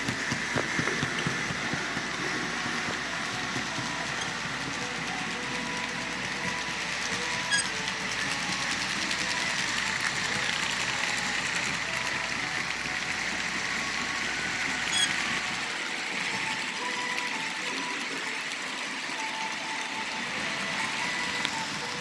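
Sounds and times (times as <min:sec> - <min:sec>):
model train motor whirring: 0:00.0 - 0:22.0
wheels on rails: 0:00.0 - 0:22.0.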